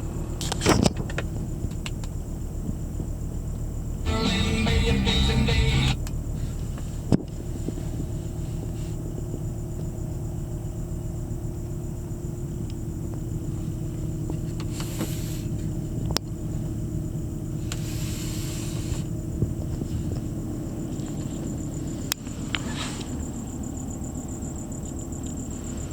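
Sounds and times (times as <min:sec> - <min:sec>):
car engine idling: 0:03.8 - 0:06.6
hiss: 0:06.4 - 0:09.1, 0:14.6 - 0:15.8, 0:17.5 - 0:20.4.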